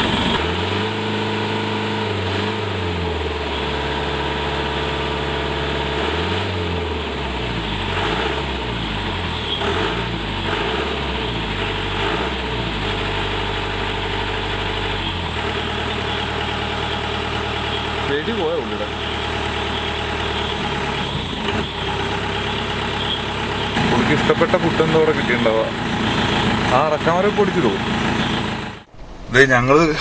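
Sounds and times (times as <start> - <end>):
car engine idling: 0.0 - 0.6, 11.2 - 30.0.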